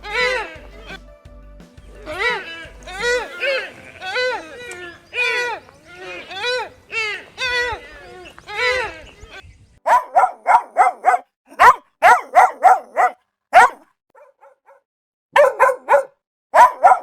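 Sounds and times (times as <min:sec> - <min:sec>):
dog barking: 0:09.8 - 0:17.0.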